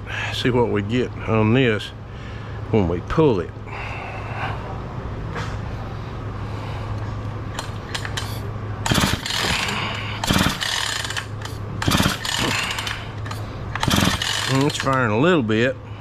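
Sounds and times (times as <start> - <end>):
steady low hum: 0.0 - 16.0
chainsaw recoil starter pulled: 7.6 - 15.0
engine cranking: 7.6 - 15.1.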